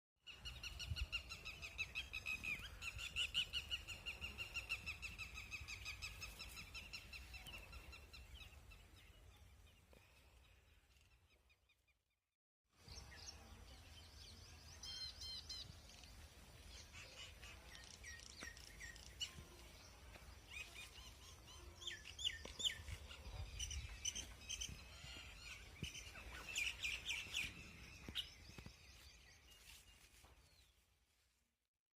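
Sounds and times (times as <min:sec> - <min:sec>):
birds chirping and trilling: 0:00.3 - 0:11.9, 0:12.8 - 0:30.8
bird warbling song: 0:12.9 - 0:19.8, 0:20.4 - 0:30.7.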